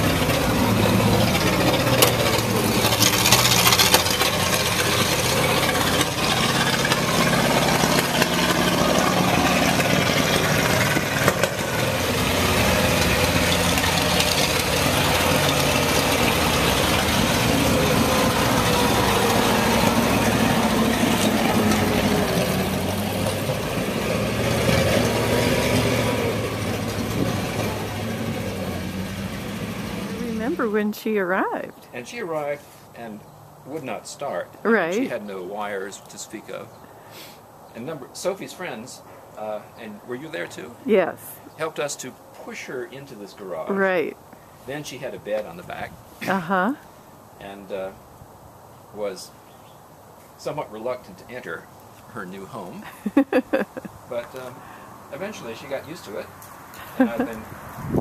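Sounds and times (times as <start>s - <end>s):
truck engine running: 0.0s - 31.7s.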